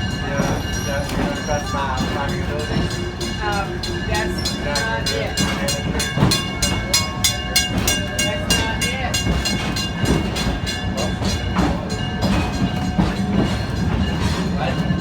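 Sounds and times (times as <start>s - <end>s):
rumble of moving train: 0.0s - 15.0s
steam locomotive exhaust beats: 0.0s - 15.0s.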